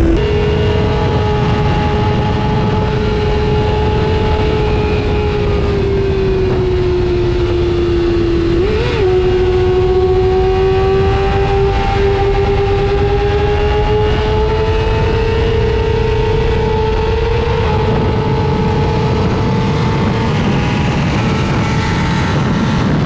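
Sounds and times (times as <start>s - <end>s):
motorcycle engine at high revs: 0.0s - 0.2s.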